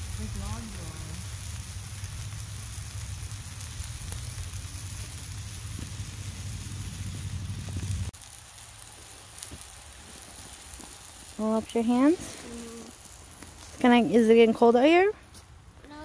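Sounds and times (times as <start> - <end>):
meat sizzling in a pan: 0.0 - 14.9
campfire crackling: 0.0 - 16.0
low rumble on microphone: 2.5 - 8.1.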